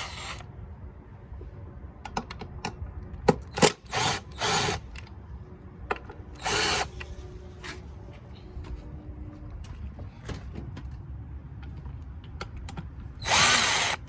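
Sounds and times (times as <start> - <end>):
cordless power tool spinning bolts: 13.2 - 14.0.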